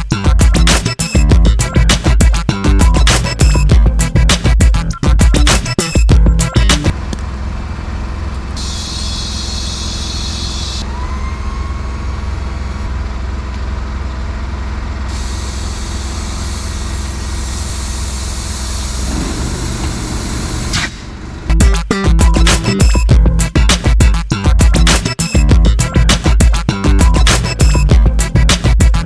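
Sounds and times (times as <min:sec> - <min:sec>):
truck diesel engine idling: 0:06.3 - 0:10.8, 0:11.6 - 0:21.5.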